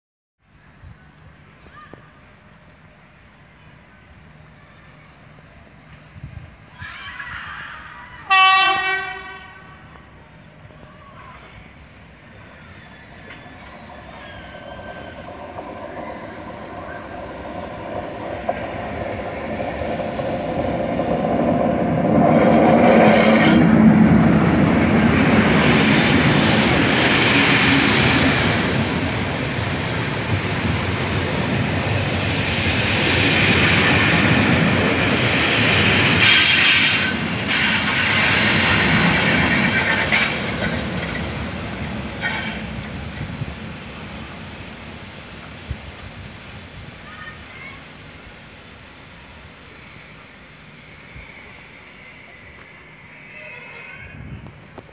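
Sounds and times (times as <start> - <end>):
train wheel and rail noise: 0.4 - 54.9
wheels clicking: 39.4 - 43.3.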